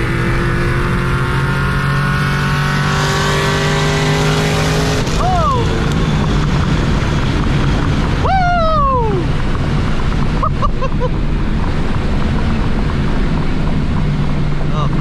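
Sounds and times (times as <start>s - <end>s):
low engine hum: 0.0s - 15.0s
wind and road noise: 0.0s - 15.0s
loud sliding whoop: 8.2s - 9.3s.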